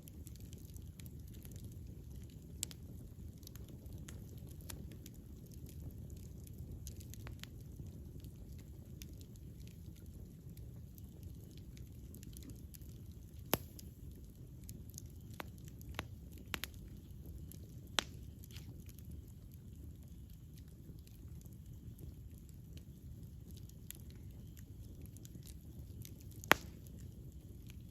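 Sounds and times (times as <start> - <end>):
fire crackles and pops: 0.0 - 27.9
low rumble of flames: 0.0 - 27.9.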